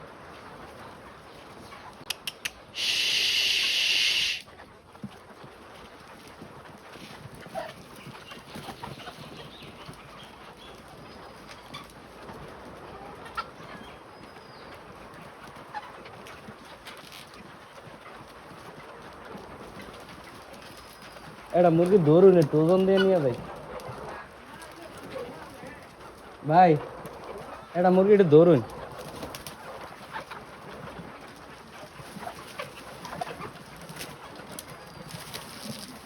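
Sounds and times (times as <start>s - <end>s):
chickens calling faintly: 0.0s - 36.0s
sharp clicks: 2.1s - 2.6s
burst of high even noise: 2.8s - 4.4s.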